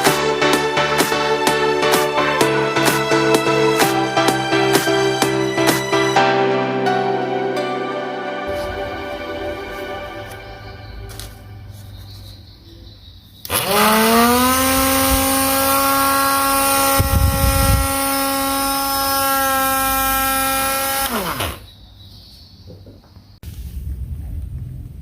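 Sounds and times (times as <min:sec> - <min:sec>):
small electric motor whining: 0:13.5 - 0:21.7
brief low rumble: 0:23.4 - 0:25.0.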